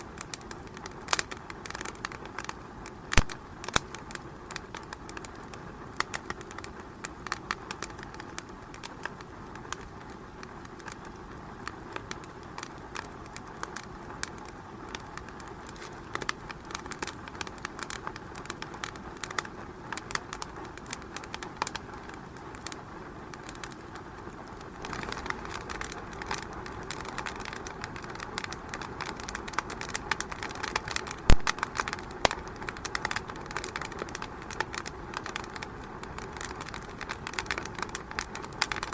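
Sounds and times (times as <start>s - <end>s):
wood fire crackling: 0.0s - 38.9s
loud fire pop: 3.2s - 3.4s, 31.3s - 32.4s.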